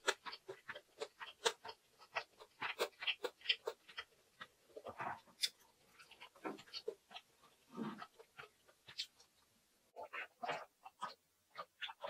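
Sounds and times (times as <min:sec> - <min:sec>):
close chewing of food: 0:00.0 - 0:12.0.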